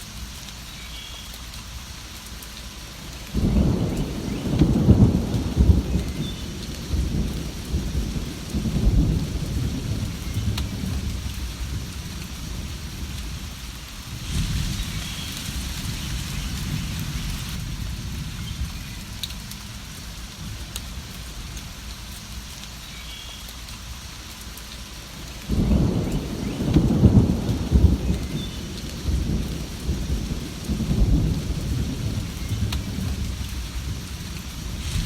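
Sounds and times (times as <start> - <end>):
steady rain: 0.0 - 35.0
thunder rumbling: 3.3 - 21.5, 25.4 - 35.0.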